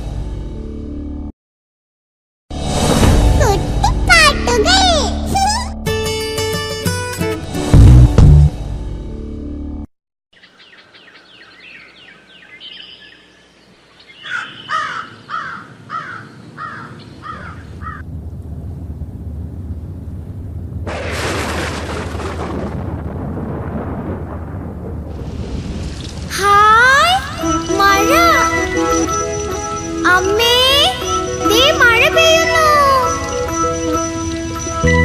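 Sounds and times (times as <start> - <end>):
steady outdoor noise: 10.4 - 22.2
bird calling in falling notes: 14.0 - 18.0.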